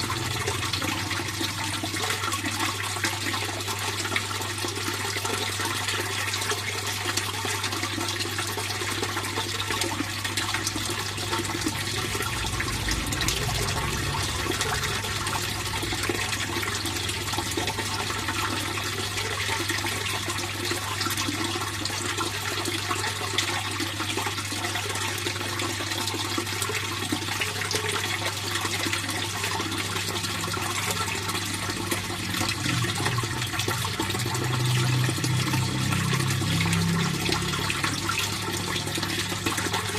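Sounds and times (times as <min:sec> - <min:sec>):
pond water flowing and splashing: 0:00.0 - 0:39.9
low hum: 0:10.6 - 0:19.4.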